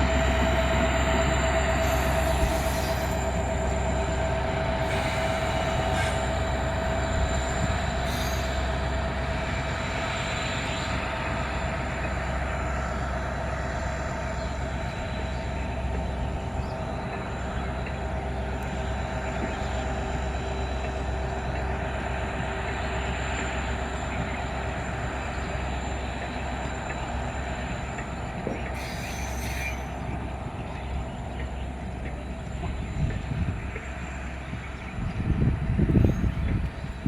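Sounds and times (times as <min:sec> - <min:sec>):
wheel squeal: 0:00.0 - 0:04.0, 0:04.6 - 0:08.9, 0:28.5 - 0:30.2
train rumbling on rails: 0:00.0 - 0:37.0.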